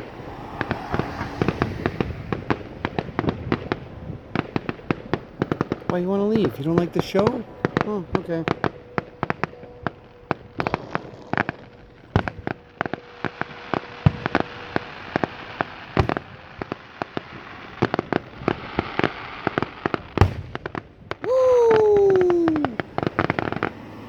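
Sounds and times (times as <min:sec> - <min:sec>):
deep fireworks booms: 0:00.0 - 0:24.0
fireworks bangs and crackling: 0:00.0 - 0:24.0
man cheering woo: 0:21.2 - 0:22.8.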